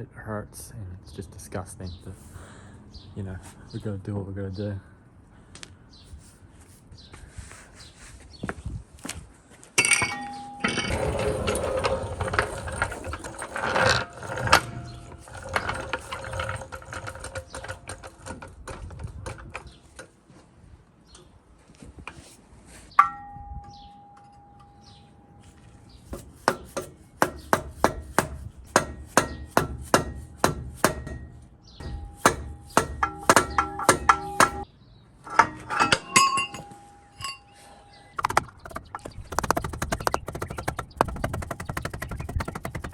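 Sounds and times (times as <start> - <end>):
hammer blows on metal: 23.0 - 34.7.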